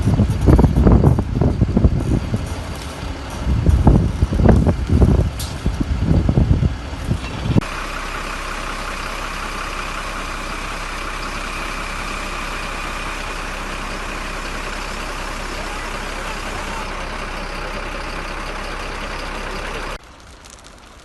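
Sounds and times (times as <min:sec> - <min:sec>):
wind buffeting microphone: 0:00.0 - 0:07.7.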